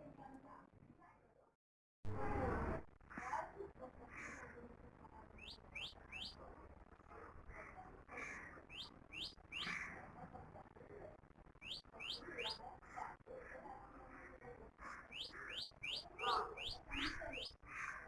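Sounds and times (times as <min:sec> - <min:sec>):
songbird whistling: 0:05.4 - 0:06.4, 0:08.7 - 0:09.7, 0:11.6 - 0:12.6, 0:15.1 - 0:17.5.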